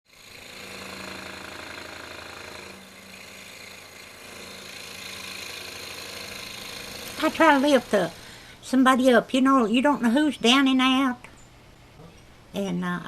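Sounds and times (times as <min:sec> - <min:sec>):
small motor whirring: 0:00.1 - 0:08.4.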